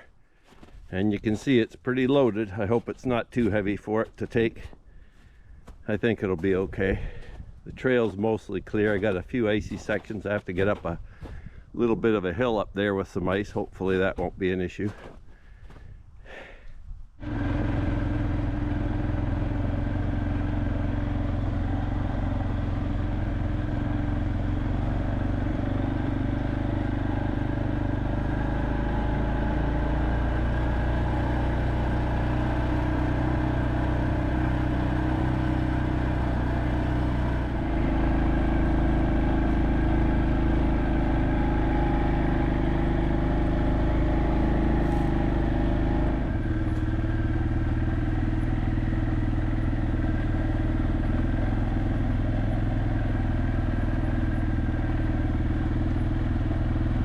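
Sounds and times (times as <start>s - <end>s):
atv engine running under load: 5.9s - 11.6s, 17.2s - 57.0s.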